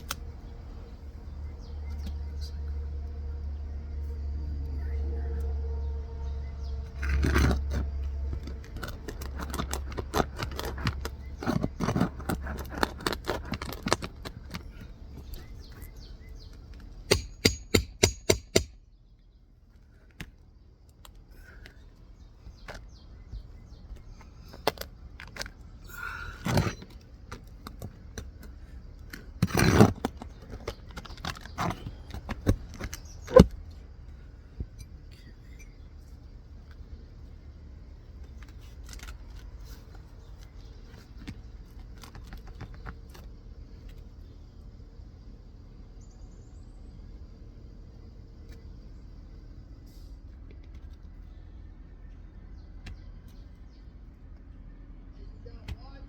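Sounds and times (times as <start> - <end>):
low hum: 0.0 - 18.0
hand tools scraping shingle: 6.8 - 18.8, 23.9 - 33.7.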